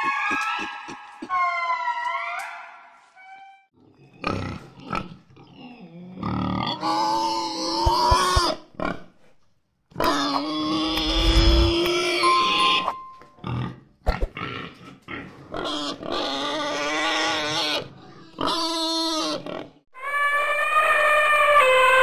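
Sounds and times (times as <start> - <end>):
pig squealing and grunting: 4.1 - 9.0, 13.5 - 22.0.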